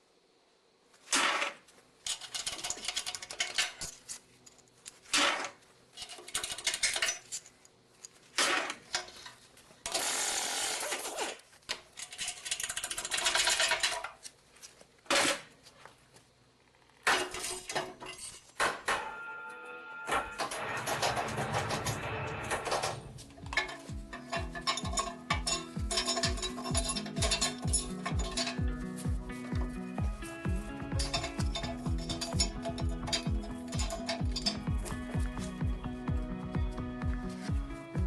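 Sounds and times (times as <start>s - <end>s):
metal tools clinking on engine parts: 2.0s - 10.1s, 11.8s - 14.3s, 17.1s - 19.1s, 20.1s - 35.7s.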